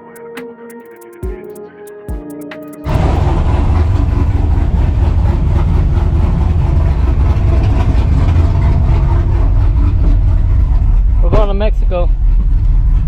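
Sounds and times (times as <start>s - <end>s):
truck engine exhaust rumble: 2.9s - 13.0s.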